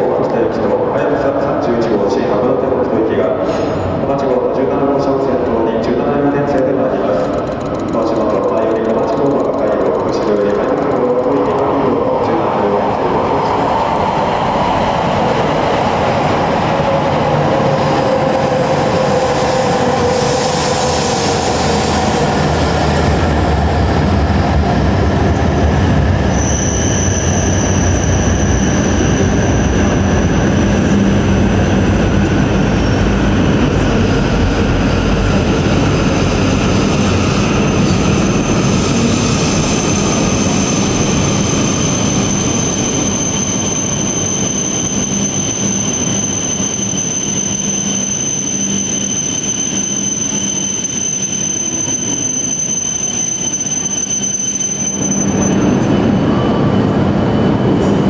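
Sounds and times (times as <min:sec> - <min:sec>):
train running noise: 0:00.0 - 0:58.0
train motor whine: 0:06.5 - 0:12.0.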